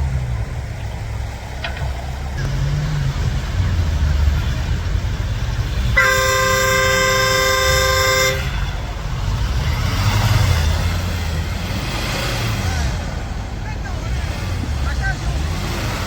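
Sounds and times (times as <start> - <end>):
engine rumble: 0.0 - 16.0
vehicle horn two-note blast: 5.9 - 9.0.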